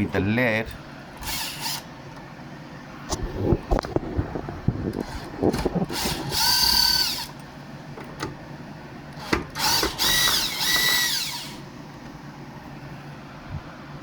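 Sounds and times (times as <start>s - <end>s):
power drill whining: 1.2s - 1.9s, 5.0s - 7.4s, 9.2s - 11.7s.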